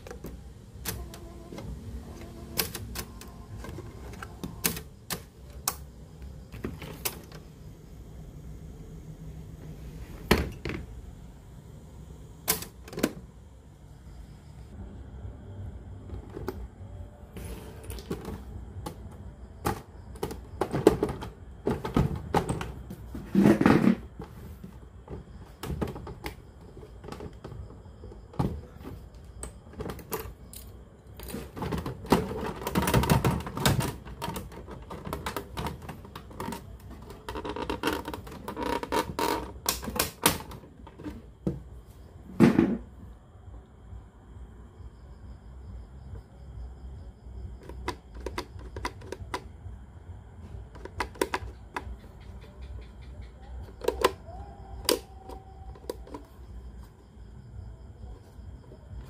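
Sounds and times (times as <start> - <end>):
clicks and taps handling a radio: 50.8 - 51.9.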